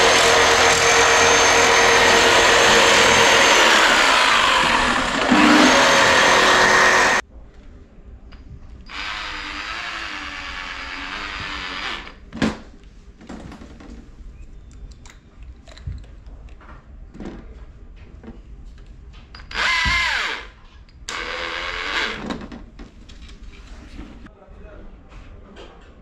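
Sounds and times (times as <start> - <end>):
power drill running: 0.0 - 7.2, 8.9 - 12.2, 19.5 - 20.5, 21.1 - 22.2.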